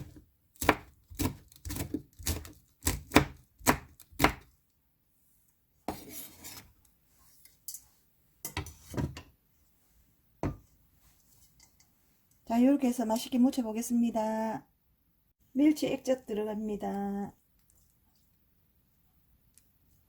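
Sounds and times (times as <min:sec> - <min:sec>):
knife chopping on cutting board: 0:00.0 - 0:04.5.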